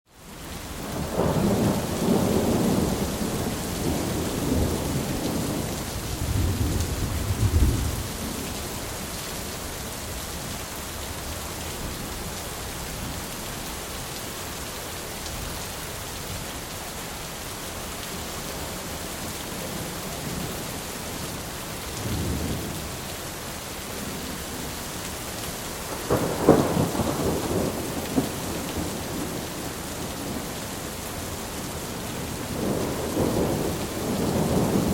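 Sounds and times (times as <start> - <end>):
steady rain: 0.1 - 34.9
thunder rumbling: 0.9 - 8.8, 25.9 - 34.9
sharp thunder clap: 26.1 - 29.4.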